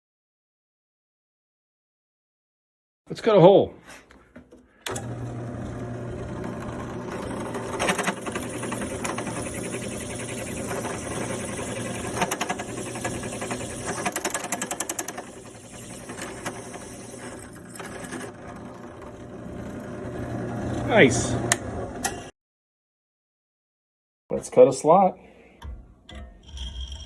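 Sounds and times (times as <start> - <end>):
power cutting tool cutting wood: 4.9 - 22.3.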